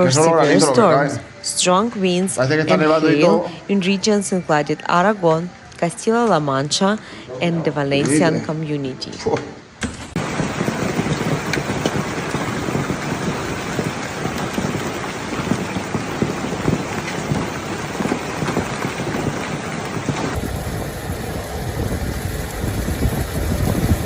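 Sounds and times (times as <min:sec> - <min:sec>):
hail and heavy rain pelting: 0:10.2 - 0:24.0
low storm rumble: 0:10.2 - 0:24.0.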